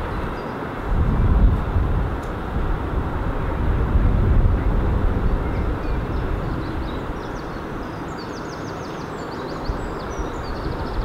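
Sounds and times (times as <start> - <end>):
freight train rumbling on tracks: 0.0 - 8.1
small birds chirping: 5.3 - 11.0.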